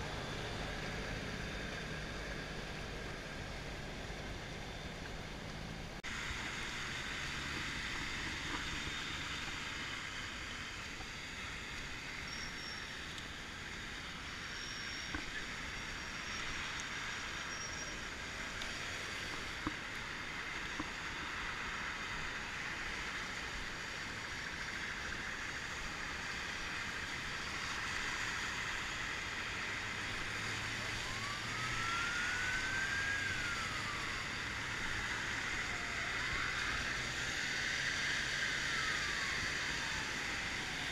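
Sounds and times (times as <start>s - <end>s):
floodwater rushing: 18.3s - 37.3s.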